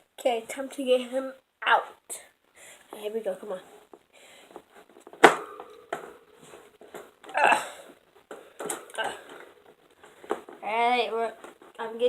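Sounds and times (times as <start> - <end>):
rustling scrape: 3.6 - 7.2, 11.3 - 11.8
sharp knock on cage: 5.2 - 6.3.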